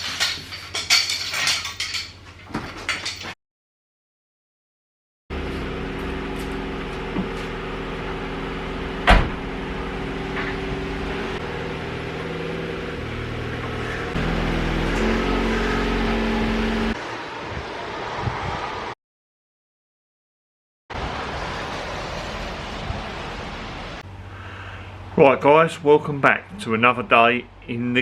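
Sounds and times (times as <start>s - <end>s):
car engine running: 5.3s - 17.0s.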